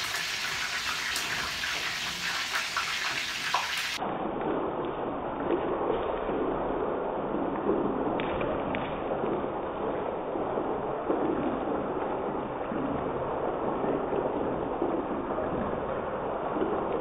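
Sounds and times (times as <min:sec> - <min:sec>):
chicken sizzling in oil: 0:00.0 - 0:04.0.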